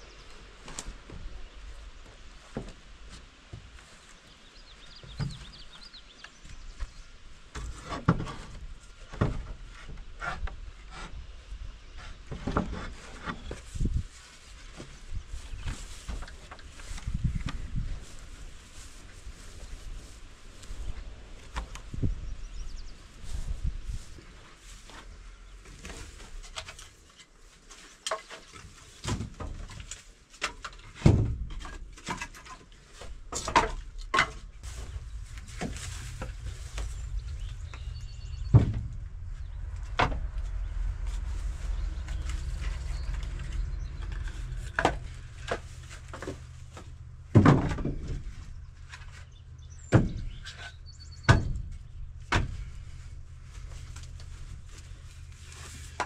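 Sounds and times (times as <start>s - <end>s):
knocks and thuds: 31.0s - 32.3s, 33.3s - 42.8s, 47.3s - 48.4s, 49.9s - 50.4s, 51.2s - 52.8s
low steady rumble: 33.1s - 56.0s.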